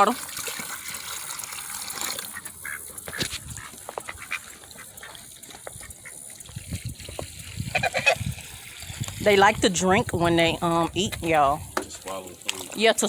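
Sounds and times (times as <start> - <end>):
soft duck calls: 7.7 - 8.2
bills clicking and splashing: 8.2 - 13.0.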